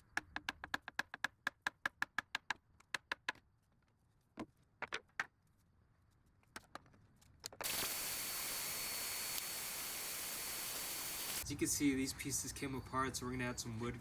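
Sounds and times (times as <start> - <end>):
steady hiss: 7.6 - 11.4.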